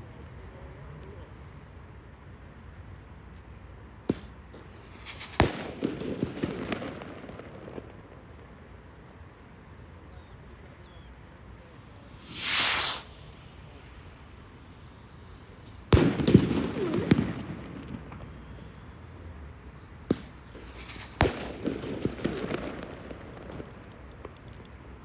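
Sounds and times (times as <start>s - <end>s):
firework bangs: 4.1s - 7.9s, 11.8s - 18.4s, 20.1s - 24.0s
firework crackling: 4.6s - 7.8s, 11.7s - 18.4s, 20.1s - 24.9s.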